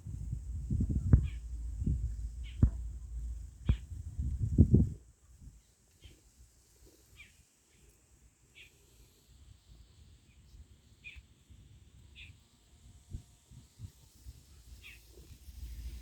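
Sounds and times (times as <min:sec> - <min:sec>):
low rumble: 0:00.0 - 0:05.0
bird chirping: 0:00.5 - 0:04.1.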